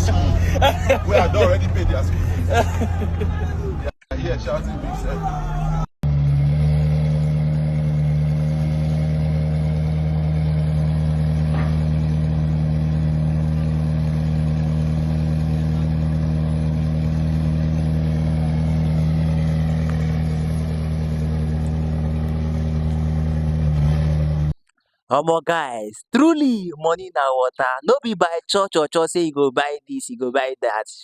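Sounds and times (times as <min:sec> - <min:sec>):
car engine idling: 0:00.0 - 0:24.5.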